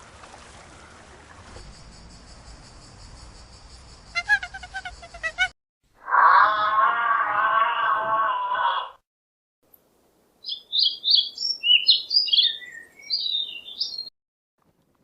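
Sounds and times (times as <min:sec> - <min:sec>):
songbird chirping and warbling: 0:10.4 - 0:14.1.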